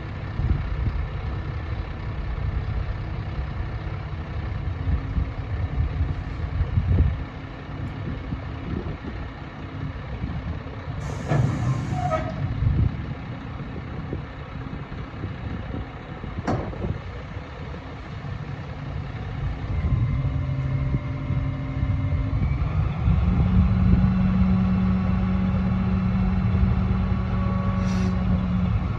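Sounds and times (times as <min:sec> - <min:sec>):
diesel truck engine rumbling: 0:00.0 - 0:28.9.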